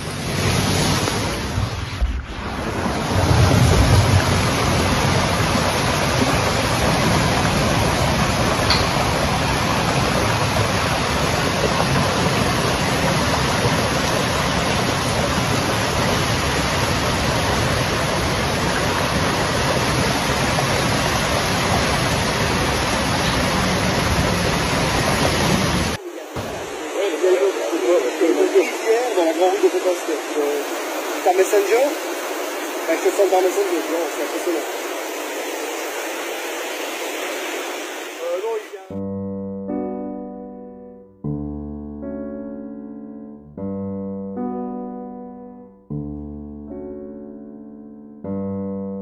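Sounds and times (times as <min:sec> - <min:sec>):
storm rushing noise: 0:00.0 - 0:38.7.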